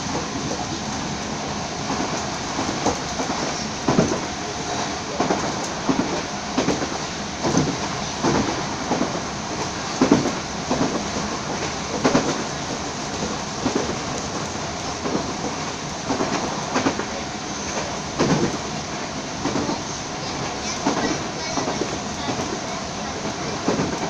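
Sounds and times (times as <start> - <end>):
train rumbling: 0.0 - 24.0.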